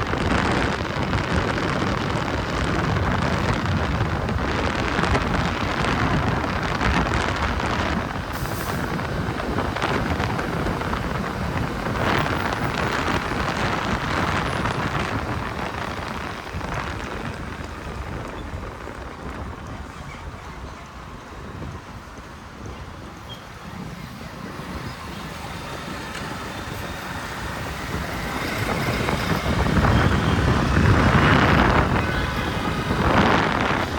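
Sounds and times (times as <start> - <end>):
traffic rumble: 0.0 - 33.9
wind on microphone: 0.0 - 33.9
motorbike engine rumble: 21.5 - 33.9.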